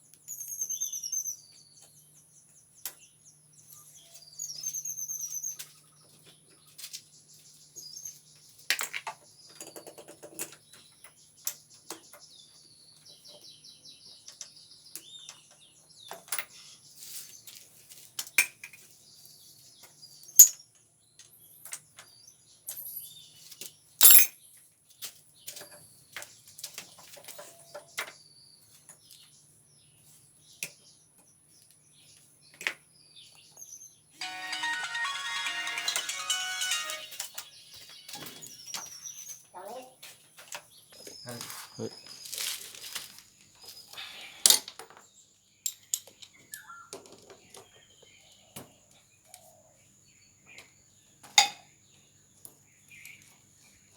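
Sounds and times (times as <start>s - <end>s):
metal tools clinking: 24.0s - 24.3s
faint high-pitched tone: 34.2s - 37.9s.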